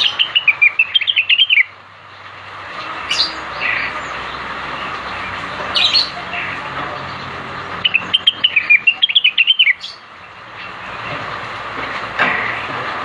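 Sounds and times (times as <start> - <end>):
sharp bird calls: 0.0 - 1.8, 2.7 - 11.2
bird singing: 0.0 - 11.2.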